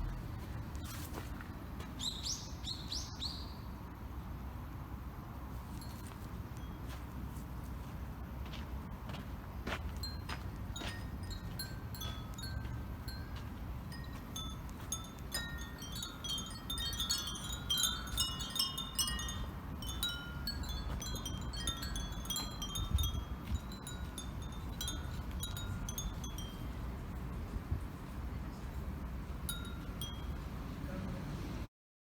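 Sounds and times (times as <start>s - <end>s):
low steady background rumble: 0.0s - 31.7s
wind bells tinkling: 5.7s - 7.2s, 9.9s - 28.0s, 29.4s - 30.8s.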